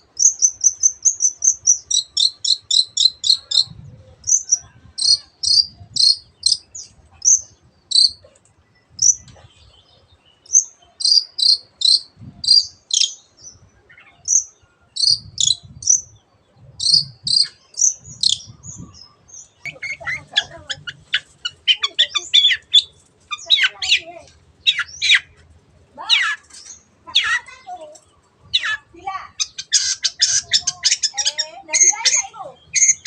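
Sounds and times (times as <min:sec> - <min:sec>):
bird fast chattering: 0:00.0 - 0:09.7, 0:10.5 - 0:13.2, 0:14.0 - 0:25.4, 0:26.0 - 0:33.0
bird singing high sharp notes: 0:00.2 - 0:16.2.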